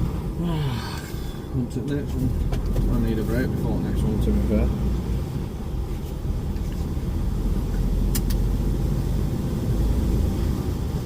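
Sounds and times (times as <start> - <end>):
diesel engine rumbling: 0.0 - 11.0
sharp clicks: 8.1 - 8.4.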